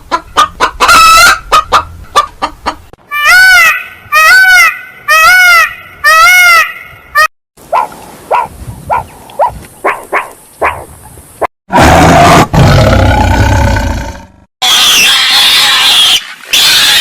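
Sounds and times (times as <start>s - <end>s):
animal harsh drawn-out call: 11.7s - 17.0s.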